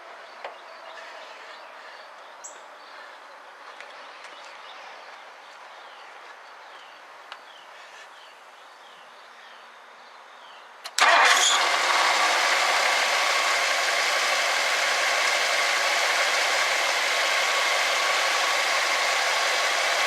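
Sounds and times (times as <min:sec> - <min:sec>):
car engine starting and idling: 0:11.0 - 0:20.0.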